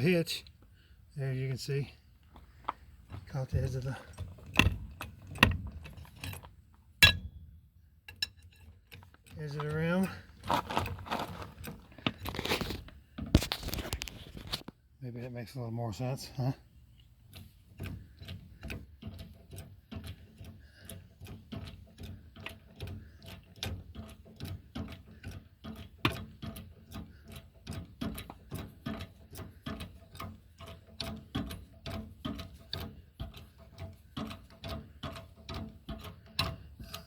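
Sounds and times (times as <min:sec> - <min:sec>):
jack ticking and clicking: 0:08.1 - 0:12.4, 0:16.3 - 0:37.0.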